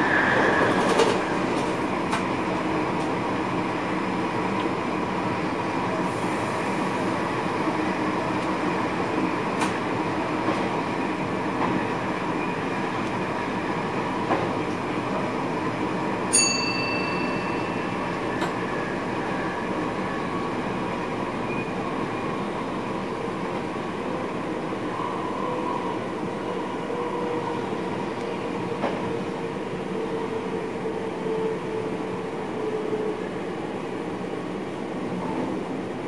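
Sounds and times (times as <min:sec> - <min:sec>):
train rolling rumble: 0:00.0 - 0:16.4, 0:17.0 - 0:36.0
brief high ringing tone: 0:16.4 - 0:18.0.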